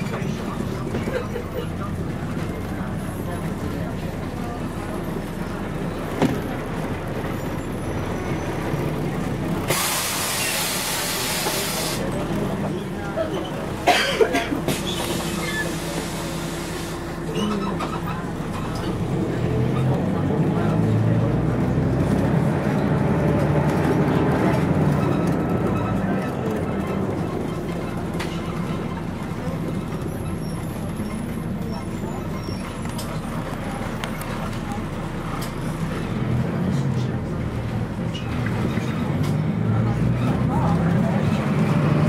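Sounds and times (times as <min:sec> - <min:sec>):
bus diesel engine running: 0:00.0 - 0:42.0
road noise: 0:00.0 - 0:42.0.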